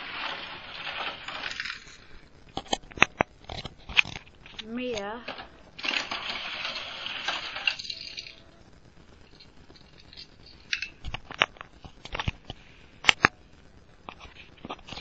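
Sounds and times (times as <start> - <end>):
toy car rolling down plastic track: 0.0 - 3.3, 3.9 - 8.6, 9.2 - 13.3
toy car and track clicks: 0.0 - 8.6.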